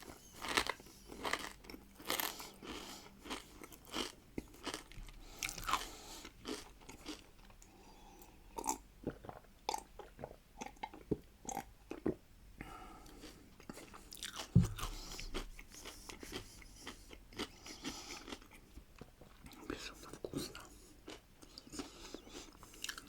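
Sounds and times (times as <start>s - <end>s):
chewing crunchy pickles: 0.0s - 7.8s, 8.5s - 12.2s, 13.0s - 23.0s
low thud: 14.6s - 15.0s.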